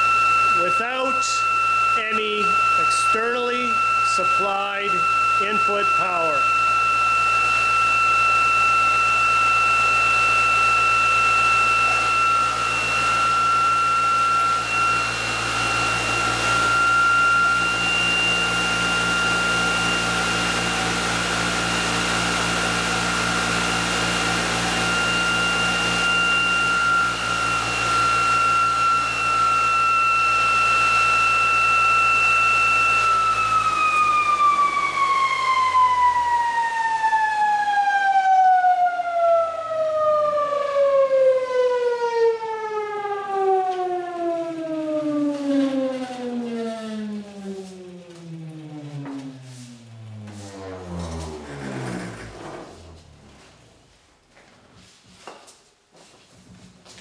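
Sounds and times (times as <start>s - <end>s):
electric motors whining: 0.0s - 37.7s, 39.5s - 53.8s
low hum: 48.1s - 53.9s.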